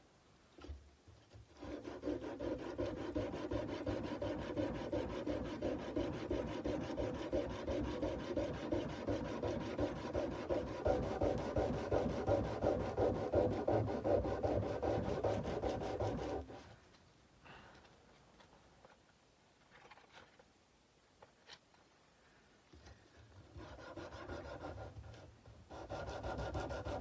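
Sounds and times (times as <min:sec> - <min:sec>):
sandpaper rubbing on a blade: 0:01.6 - 0:16.6.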